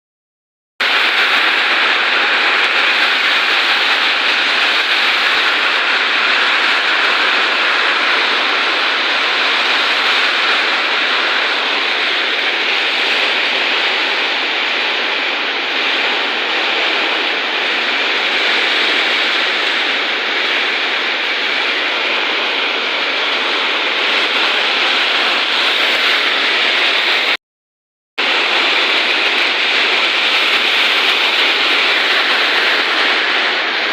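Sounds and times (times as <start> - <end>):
heavy rain in strong wind: 0.8 - 27.4, 28.2 - 33.9.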